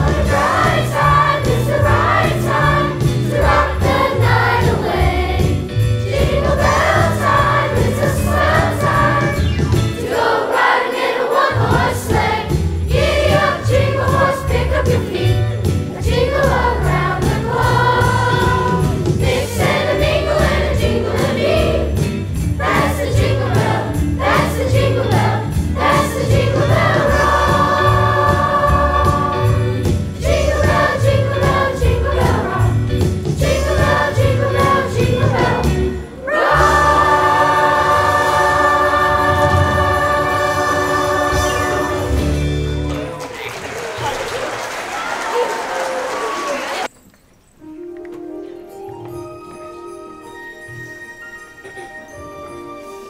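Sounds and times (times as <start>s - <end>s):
pulsing bass: 0.0s - 10.0s
children's chorus singing: 0.0s - 22.0s, 22.6s - 42.4s
sleigh bells shaking: 0.0s - 42.4s.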